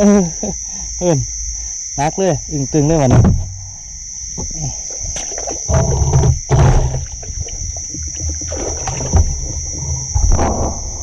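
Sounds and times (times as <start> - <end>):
crickets and insects droning: 0.0 - 11.0
water sloshing and splashing: 2.8 - 11.0
knocks: 3.0 - 3.8, 4.4 - 11.0.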